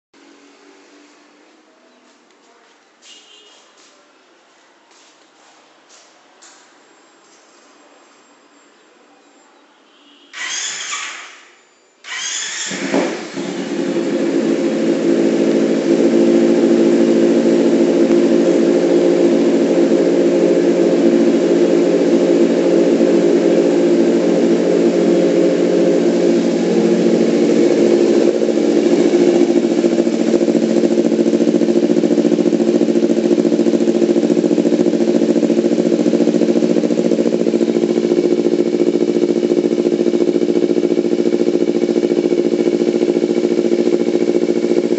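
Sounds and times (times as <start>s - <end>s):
motorcycle engine through open exhaust: 12.1s - 44.9s.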